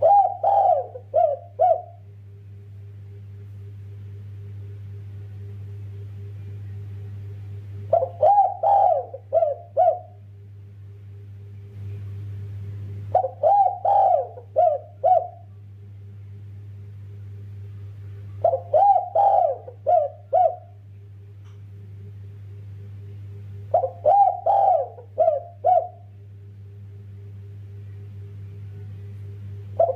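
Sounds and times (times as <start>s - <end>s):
dove cooing: 0.0s - 2.1s, 7.9s - 10.2s, 13.1s - 15.5s, 18.4s - 20.8s, 23.7s - 26.1s
steady low hum: 0.0s - 29.9s.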